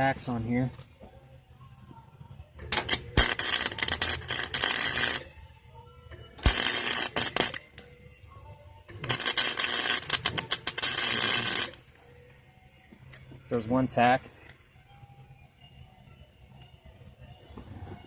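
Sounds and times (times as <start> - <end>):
welding arc crackling: 2.6 - 5.3, 6.4 - 7.9, 9.0 - 11.8.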